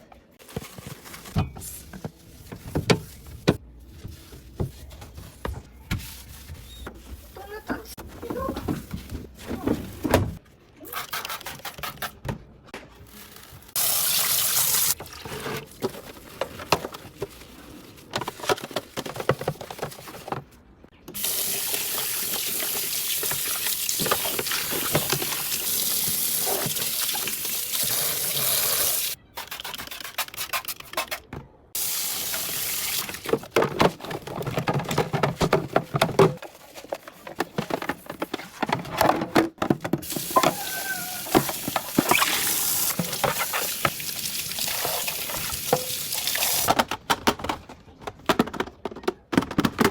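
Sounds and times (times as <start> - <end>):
water running from a tap: 13.8 - 15.0, 21.2 - 29.2, 40.2 - 46.7.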